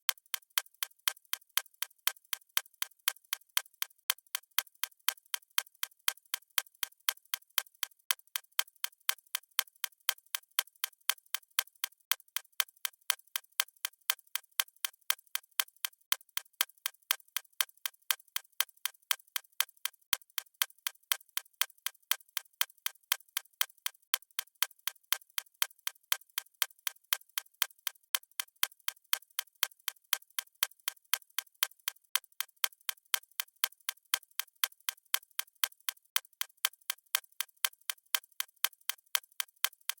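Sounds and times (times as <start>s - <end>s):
clock ticking: 32.1s - 40.0s.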